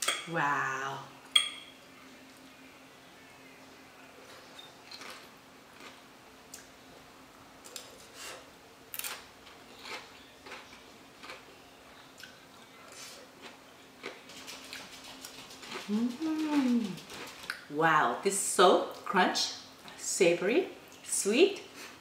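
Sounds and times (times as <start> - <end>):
chewing crunchy food: 4.8 - 6.7, 9.0 - 17.6.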